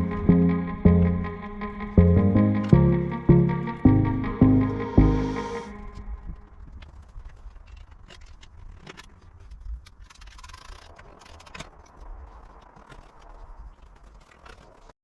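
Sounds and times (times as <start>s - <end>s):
low rumble: 0.0s - 6.4s
faint clicks and scrapes: 6.4s - 15.0s.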